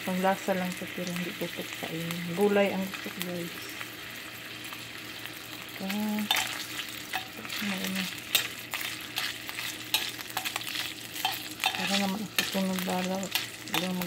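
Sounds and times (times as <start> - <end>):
pork fat sizzling in a frying pan: 0.0 - 14.0
utensil scraping and knocking on pan: 6.2 - 14.0.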